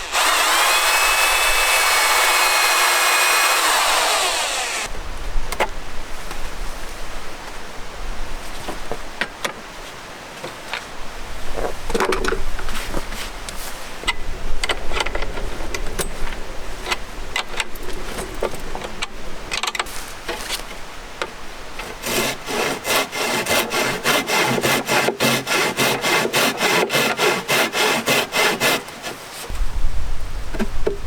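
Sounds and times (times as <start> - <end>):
hand saw cutting wood: 0.0 - 4.9, 21.8 - 29.3.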